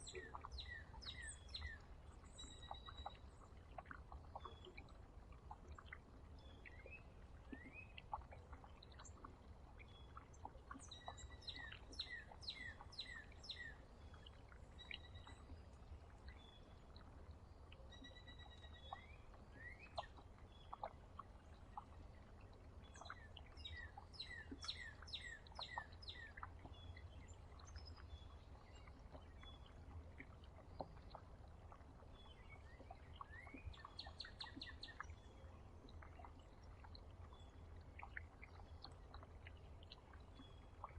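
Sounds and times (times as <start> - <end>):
low steady hum: 0.0 - 40.9
songbirds singing: 0.0 - 40.9
bird chirps: 10.8 - 13.8.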